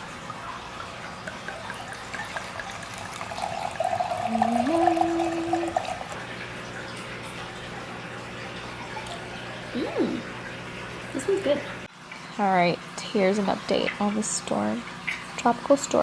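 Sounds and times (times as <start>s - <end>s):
water running and splashing: 0.0s - 11.9s.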